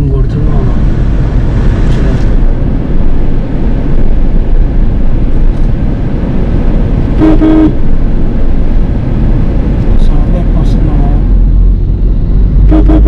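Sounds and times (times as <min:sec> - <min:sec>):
car engine rumble from inside: 0:00.0 - 0:13.0
car horn honk: 0:07.2 - 0:07.8, 0:12.6 - 0:13.0.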